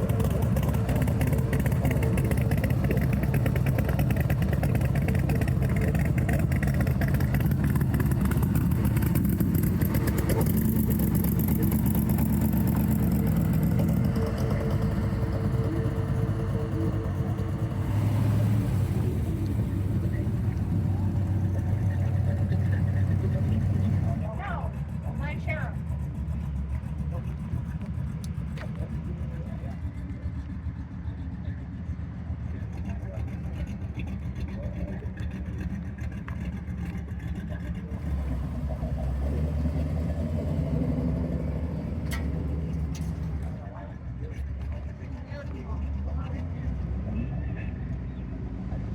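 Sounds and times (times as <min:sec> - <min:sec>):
car engine running: 0:00.0 - 0:48.9.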